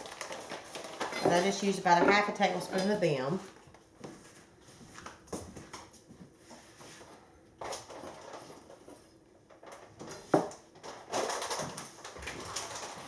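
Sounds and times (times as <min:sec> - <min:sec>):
rustling of seed bags: 0:00.0 - 0:02.3, 0:10.8 - 0:13.0.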